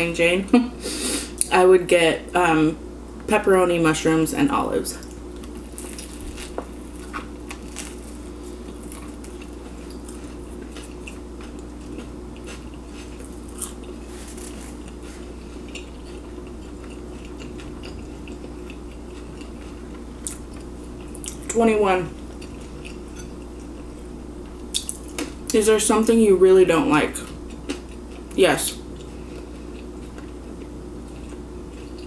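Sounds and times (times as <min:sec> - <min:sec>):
steady low hum: 0:00.0 - 0:32.0
chewing food: 0:05.0 - 0:25.6, 0:27.2 - 0:32.0.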